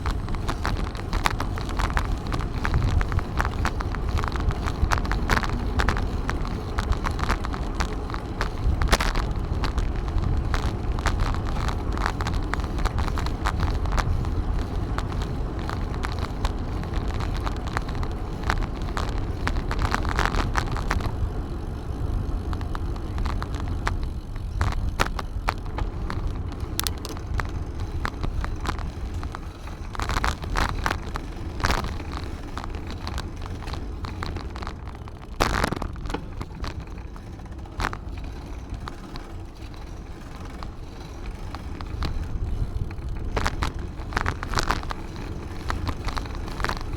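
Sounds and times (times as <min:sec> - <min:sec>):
wind on microphone: 0:00.0 - 0:38.1
bicycle clicks and rattles: 0:00.0 - 0:46.9
bicycle tyres on path: 0:00.0 - 0:46.9.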